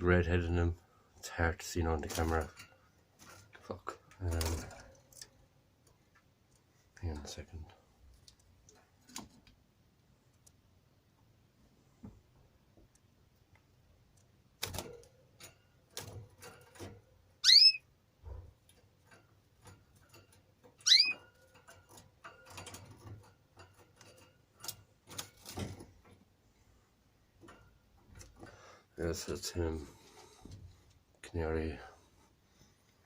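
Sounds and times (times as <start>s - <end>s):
cage bird chirping: 16.6s - 18.4s, 20.6s - 23.7s.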